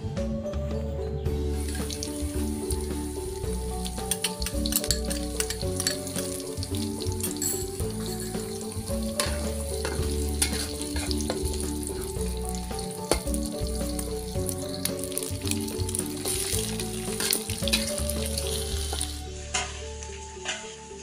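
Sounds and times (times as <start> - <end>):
egg sizzling in oil: 1.6 - 19.3
metal spatula scraping wok: 3.9 - 12.3, 16.1 - 20.9.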